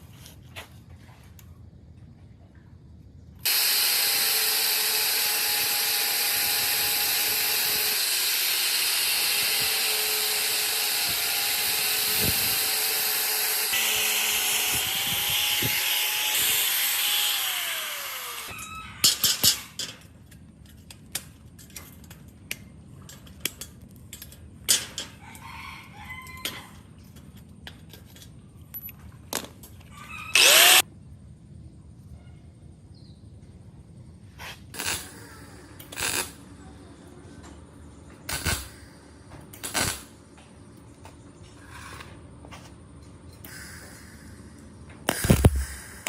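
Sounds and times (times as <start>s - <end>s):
electric power tool running: 3.4s - 18.6s, 30.4s - 30.8s.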